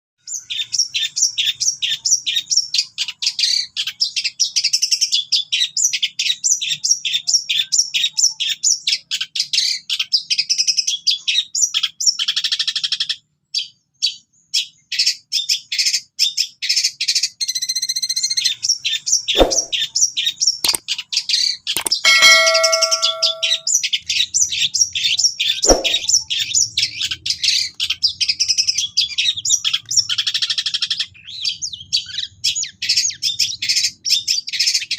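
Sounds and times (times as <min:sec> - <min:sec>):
sharp clicks: 0:21.8 - 0:23.6.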